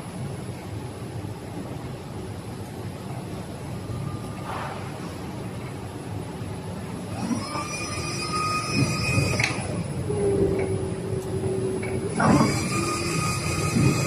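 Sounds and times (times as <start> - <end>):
lower hum: 0.0 - 14.0
steady mechanical noise: 0.0 - 14.0
motor whine: 6.8 - 14.0.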